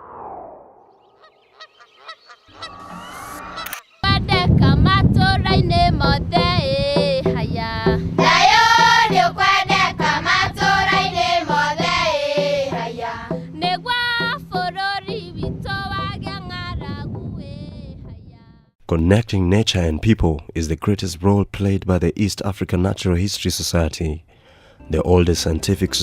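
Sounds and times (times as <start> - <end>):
group of voices singing: 7.3 - 13.8.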